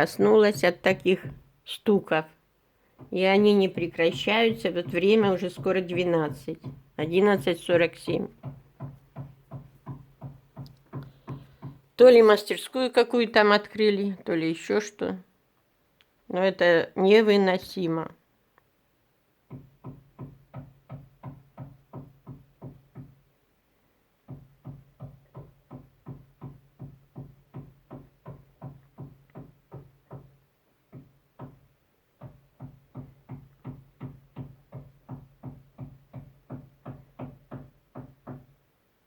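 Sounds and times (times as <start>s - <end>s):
knocking through a wall: 0.0s - 2.2s, 2.8s - 12.2s, 19.4s - 23.3s, 24.2s - 38.6s.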